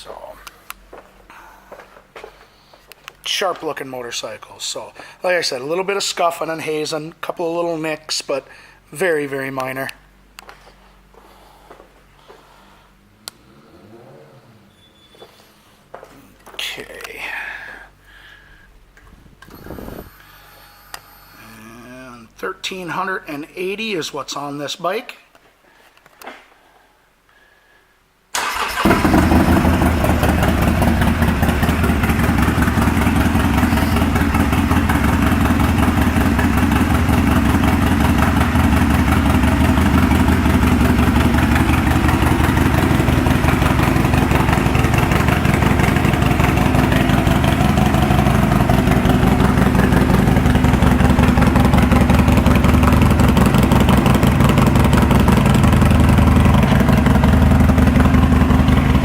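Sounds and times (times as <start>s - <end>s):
motorcycle engine idling: 28.4s - 59.0s.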